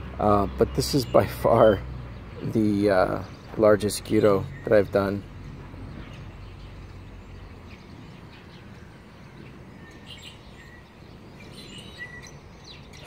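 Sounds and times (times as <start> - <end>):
faint bird chirps: 6.0 - 13.0.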